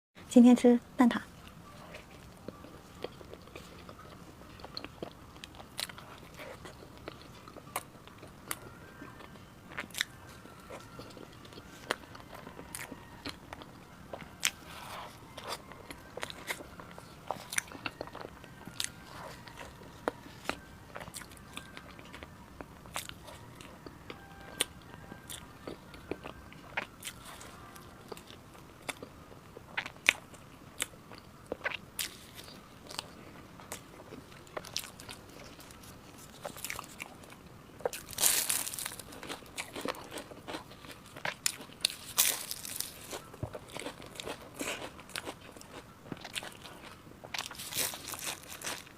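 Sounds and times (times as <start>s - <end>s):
chewing: 1.4s - 48.9s
crunchy pastry crackles: 1.4s - 48.9s.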